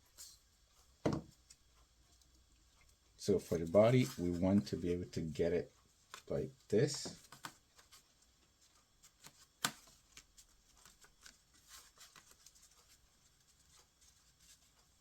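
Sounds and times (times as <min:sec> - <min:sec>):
paper rustling and tapping: 0:06.0 - 0:15.0.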